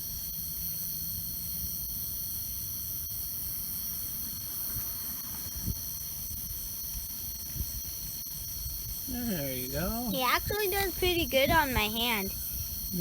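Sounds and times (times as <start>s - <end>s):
night insects trilling: 0.0s - 13.0s.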